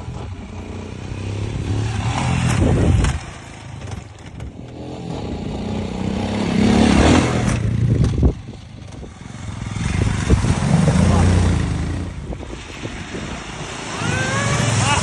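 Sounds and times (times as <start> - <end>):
motorcycle engine revving: 0.0 - 12.4
clatter and scraping: 2.1 - 5.4, 7.0 - 9.1.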